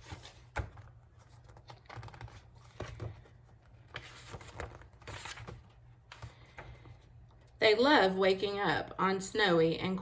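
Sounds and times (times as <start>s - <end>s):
pages rustling: 0.0s - 7.5s.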